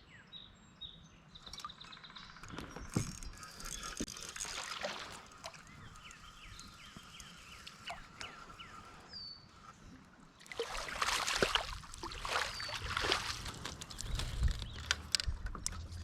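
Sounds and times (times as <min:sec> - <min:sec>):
small birds chirping: 0:00.0 - 0:10.1, 0:11.4 - 0:16.0
rustling cracking and splashing: 0:02.5 - 0:08.6, 0:10.4 - 0:16.0.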